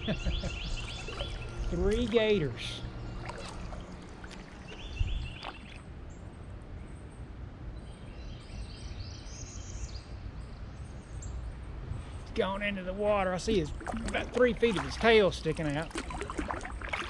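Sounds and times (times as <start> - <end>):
small birds chirping: 0.0 - 6.5
wind and water rumble: 0.0 - 7.8, 10.1 - 17.0.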